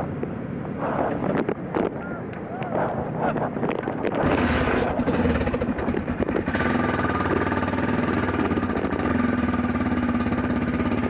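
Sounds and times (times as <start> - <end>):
dirt bike engine running: 3.6 - 11.0.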